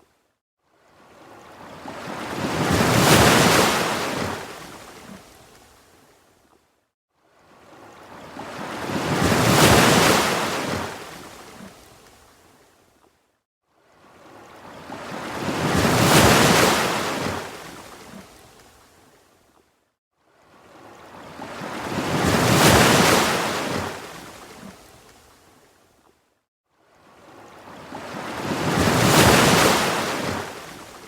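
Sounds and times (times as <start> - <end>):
ocean waves washing on shore: 0.8 - 5.8, 7.3 - 12.4, 13.8 - 18.9, 20.4 - 25.6, 26.9 - 31.0.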